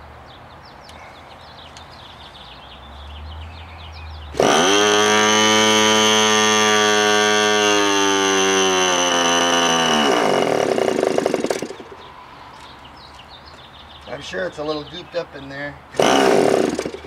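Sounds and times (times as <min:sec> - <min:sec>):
electric starter whine: 0:04.4 - 0:12.1, 0:16.0 - 0:17.0
engine rough stutter: 0:04.4 - 0:12.1, 0:16.0 - 0:17.0.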